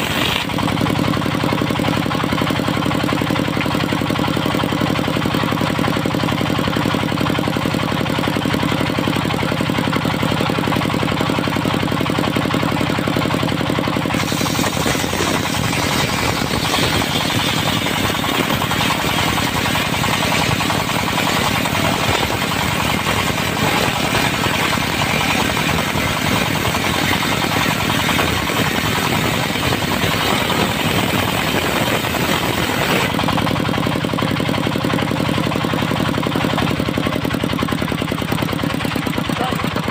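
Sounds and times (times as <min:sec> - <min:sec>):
saw blade cutting wood: 0:00.0 - 0:00.9, 0:14.0 - 0:33.5
diesel engine running: 0:00.0 - 0:39.9.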